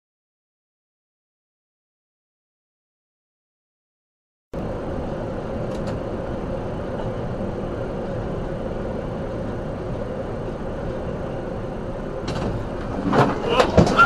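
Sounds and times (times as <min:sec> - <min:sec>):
vehicle engine and road noise: 0:04.6 - 0:14.0.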